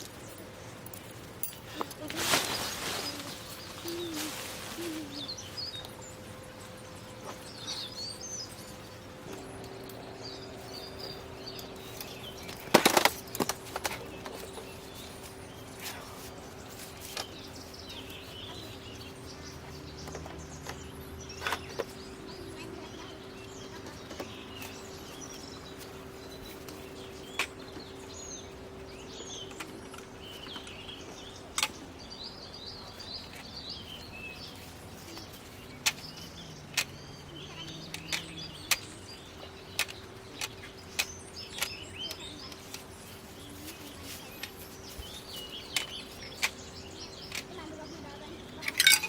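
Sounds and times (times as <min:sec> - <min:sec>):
faint steady hum: 0:00.0 - 0:49.0
small birds chirping: 0:00.0 - 0:49.0.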